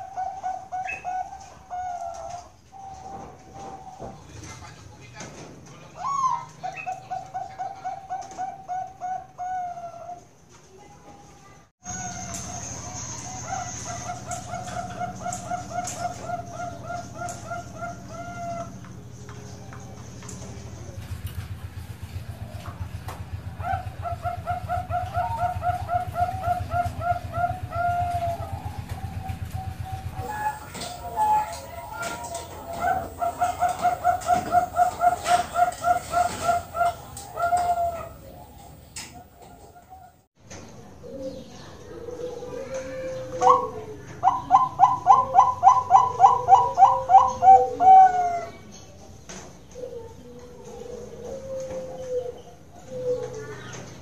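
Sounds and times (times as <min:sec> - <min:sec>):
dove cooing: 0:00.0 - 0:04.5, 0:06.0 - 0:10.3, 0:11.9 - 0:40.2, 0:41.0 - 0:48.7, 0:49.6 - 0:54.0
steady low hum: 0:11.8 - 0:49.2.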